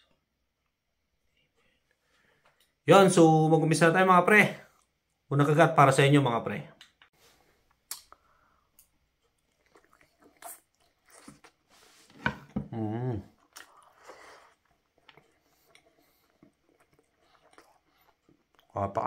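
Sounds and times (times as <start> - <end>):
moist chewing: 7.8 - 12.0, 13.4 - 18.8
man humming: 12.6 - 13.3.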